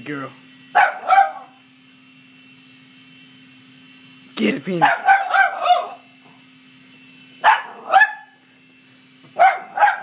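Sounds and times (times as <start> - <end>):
toy helicopter hovering hum: 0.0 - 10.0
dog barking: 0.8 - 1.6, 4.8 - 6.0, 7.4 - 8.4, 9.4 - 10.0.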